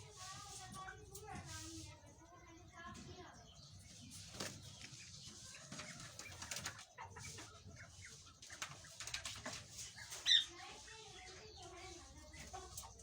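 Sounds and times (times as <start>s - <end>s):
wings flapping: 4.2s - 4.9s, 5.8s - 6.8s, 8.4s - 10.4s.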